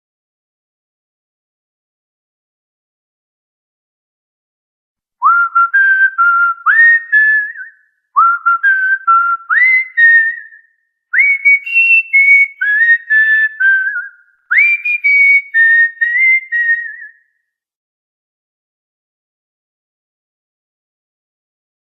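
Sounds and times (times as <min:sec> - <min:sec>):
person whistling a tune: 0:05.2 - 0:17.4.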